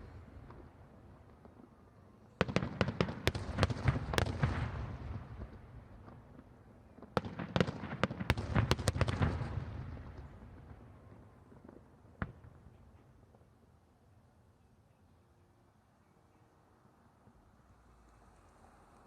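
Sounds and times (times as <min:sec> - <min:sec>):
fireworks bangs: 0:02.4 - 0:13.2.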